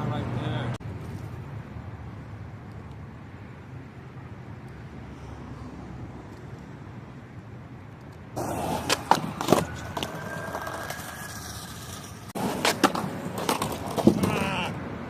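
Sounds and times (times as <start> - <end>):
skateboard rolling on pavement: 7.8 - 15.0
skateboard deck clacking on ground: 8.4 - 14.7.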